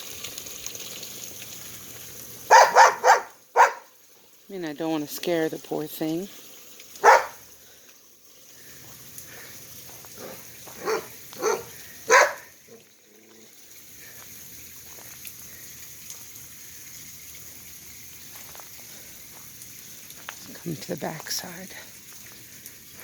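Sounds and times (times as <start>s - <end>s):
lawn sprinkler hiss: 0.0s - 23.0s
dog barking: 2.5s - 3.9s, 7.0s - 7.4s, 10.2s - 12.5s.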